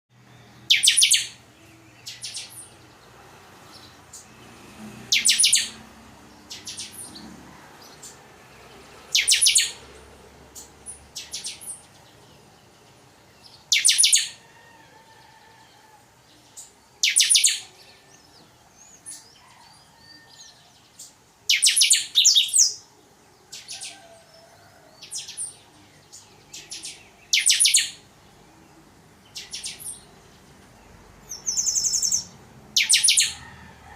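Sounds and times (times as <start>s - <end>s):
songbird singing high phrases: 0.4s - 4.4s, 5.1s - 5.8s, 6.4s - 7.2s, 9.0s - 9.9s, 10.5s - 14.4s, 16.4s - 19.4s, 20.4s - 22.9s, 25.0s - 30.5s, 31.2s - 33.4s.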